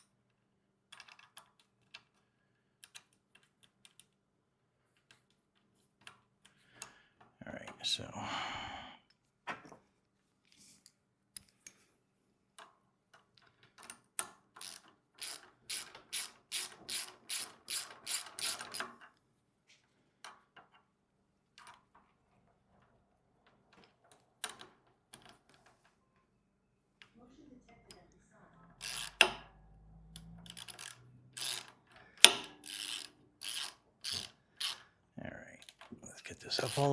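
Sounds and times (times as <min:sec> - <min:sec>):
ratchet wrench clicking: 0:14.6 - 0:19.0, 0:28.8 - 0:34.9, 0:36.5 - 0:36.9.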